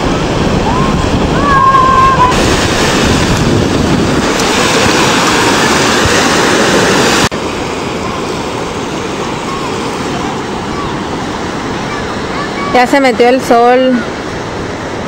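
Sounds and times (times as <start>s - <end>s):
wind rumbling on microphone: 0.0s - 12.0s
sea surf washing on shore: 0.0s - 15.0s.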